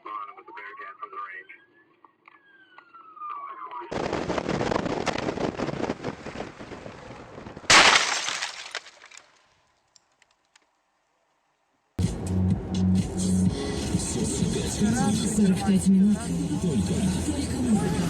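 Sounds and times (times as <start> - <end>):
crunching and cracking crash noise: 3.9 - 10.7
loud crash impact: 7.7 - 9.0.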